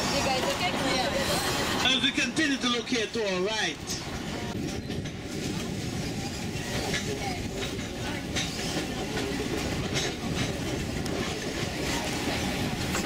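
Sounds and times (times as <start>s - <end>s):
train rumbling and rattling: 0.0s - 13.0s
wheels clicking on rails: 3.8s - 13.0s.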